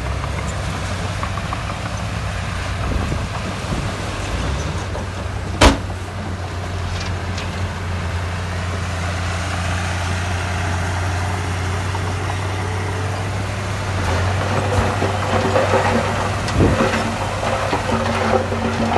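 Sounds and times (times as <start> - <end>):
heavy diesel engine running: 0.0 - 18.9.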